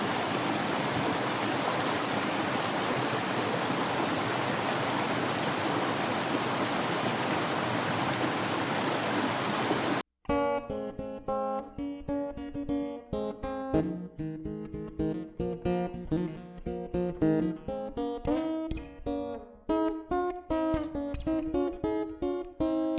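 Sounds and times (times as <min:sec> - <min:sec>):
acoustic guitar music: 0:10.3 - 0:22.9.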